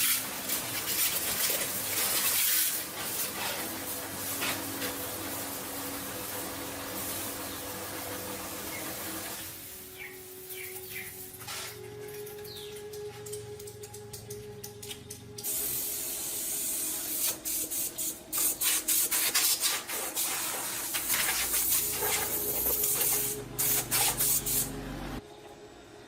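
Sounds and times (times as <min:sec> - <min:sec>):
pressurised spray hissing: 0:15.4 - 0:24.8.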